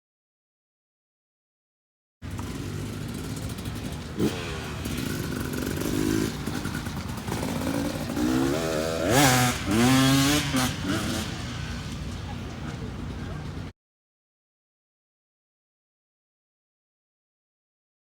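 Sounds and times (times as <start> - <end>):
motorcycle engine revving: 2.2 - 13.7.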